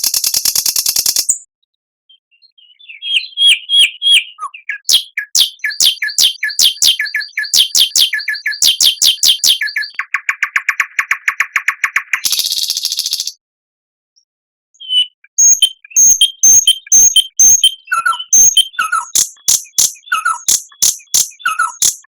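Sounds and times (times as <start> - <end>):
songbird singing: 2.1 - 13.4, 14.8 - 22.0.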